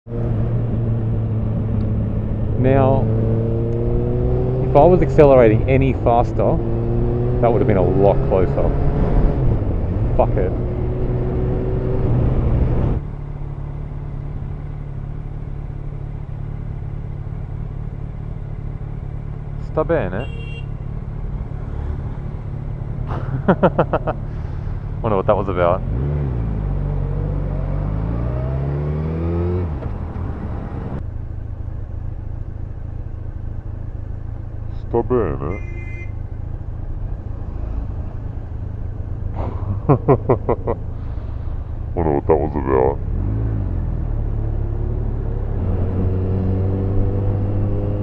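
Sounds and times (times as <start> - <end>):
road and wind noise: 0.0 - 48.0
motorcycle engine accelerating: 0.1 - 35.3, 36.4 - 48.0
low steady rumble: 29.8 - 44.3.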